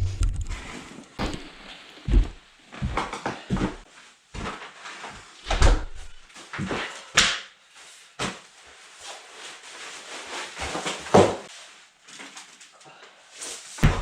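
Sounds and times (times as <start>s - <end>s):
knocks and thumps: 0.0s - 3.7s
rustling and scraping: 0.0s - 7.1s, 7.7s - 14.0s.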